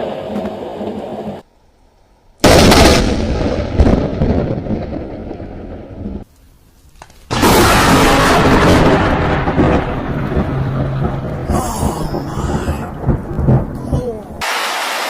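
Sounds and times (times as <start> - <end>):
loud thunder crack: 2.4 - 6.2, 7.3 - 14.7
rumbling thunder: 2.4 - 6.2, 7.3 - 14.4.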